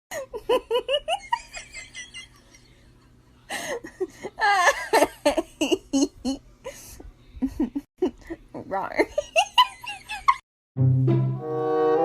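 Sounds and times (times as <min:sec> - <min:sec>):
person laughing: 0:00.1 - 0:02.6, 0:03.5 - 0:06.4, 0:09.1 - 0:10.4.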